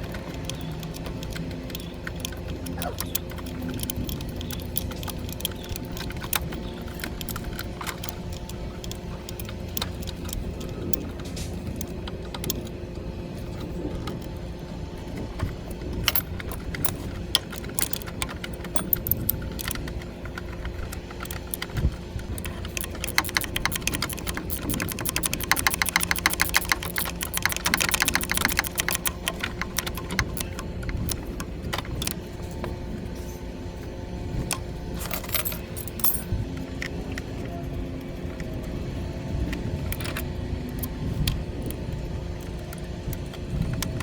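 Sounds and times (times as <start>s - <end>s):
steady low hum: 0.0s - 44.0s
rapid even clicking: 15.4s - 32.2s
metallic clinks of hand tools: 16.1s - 19.7s, 22.4s - 31.2s, 35.0s - 36.3s.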